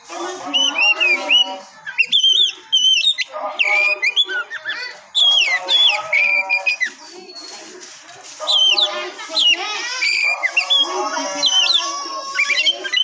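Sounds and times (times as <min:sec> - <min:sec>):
bird singing whistled notes: 0:00.5 - 0:07.7, 0:08.5 - 0:11.8.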